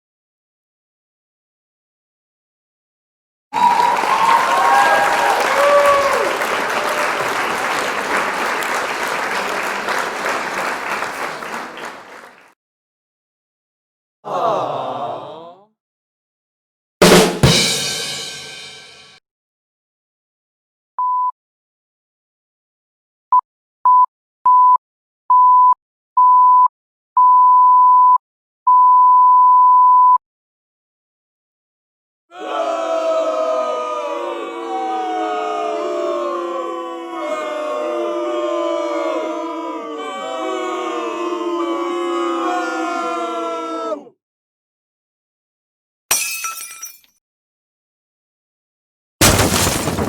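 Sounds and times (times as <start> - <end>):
crowd applauding: 3.6 - 12.5.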